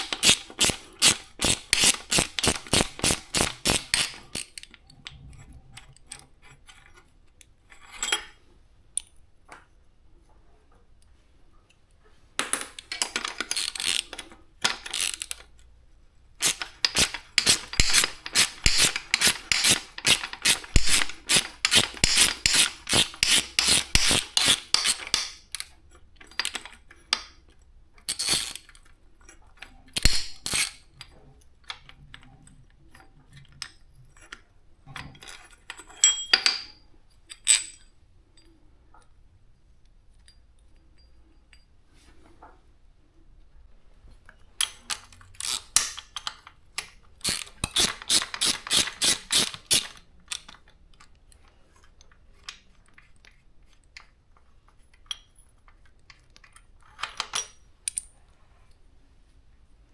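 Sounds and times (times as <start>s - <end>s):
ratcheting hand tool strokes: 0.0s - 4.7s, 13.0s - 15.4s, 16.4s - 25.6s, 28.1s - 28.6s, 30.0s - 30.8s, 45.4s - 46.0s, 47.2s - 50.6s
metallic clinks and knocks: 16.4s - 27.4s, 35.0s - 38.6s.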